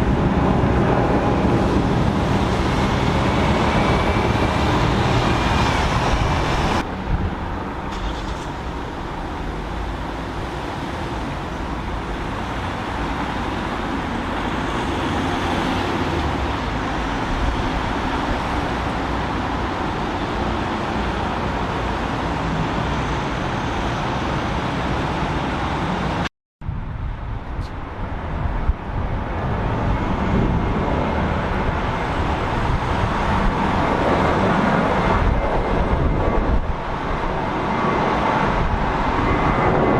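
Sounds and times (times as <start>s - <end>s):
jet climbing after takeoff: 0.0s - 39.9s
jet departing: 0.0s - 39.9s.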